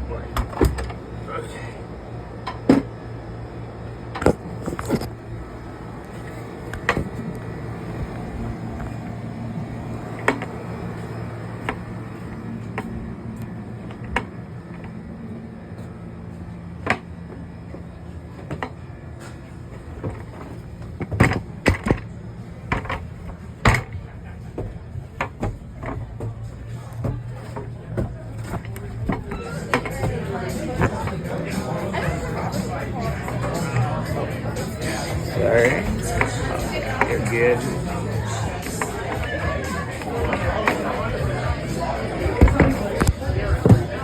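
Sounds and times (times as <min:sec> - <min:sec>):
room ambience hum: 0:00.0 - 0:44.0.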